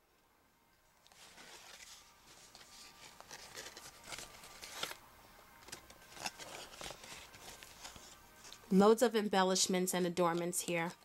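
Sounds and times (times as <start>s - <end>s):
cardstock rustling and crinkling: 1.1s - 5.0s, 5.6s - 8.7s
paper crackles: 1.1s - 5.0s, 5.6s - 8.6s.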